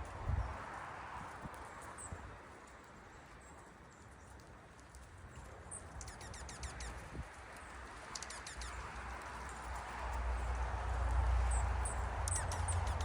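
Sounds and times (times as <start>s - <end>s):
songbirds calling: 5.4s - 9.6s, 11.4s - 13.0s
faint high bird chips: 6.0s - 7.1s.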